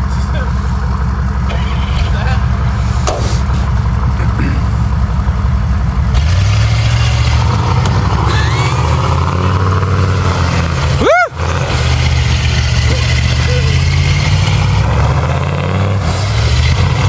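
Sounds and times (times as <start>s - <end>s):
diesel engine revving under load: 0.0s - 17.0s
loud squeal: 8.3s - 9.2s.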